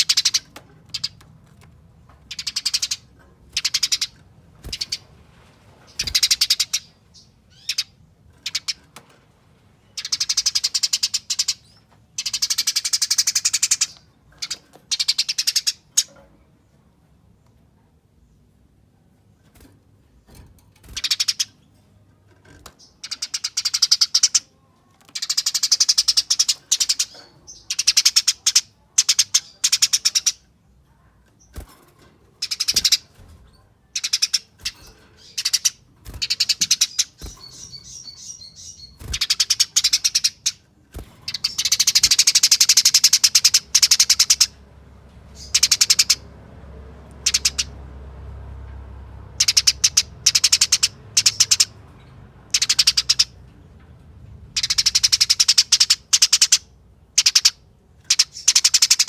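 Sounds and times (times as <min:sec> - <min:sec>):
sparrow chattering calls: 0:00.0 - 0:01.2, 0:02.3 - 0:05.0, 0:05.9 - 0:08.8, 0:10.0 - 0:16.1, 0:20.8 - 0:21.6, 0:22.8 - 0:24.5, 0:25.1 - 0:30.5, 0:32.4 - 0:44.6, 0:45.4 - 0:46.2, 0:47.2 - 0:47.8, 0:49.3 - 0:51.8, 0:52.5 - 0:53.4, 0:54.5 - 0:59.0.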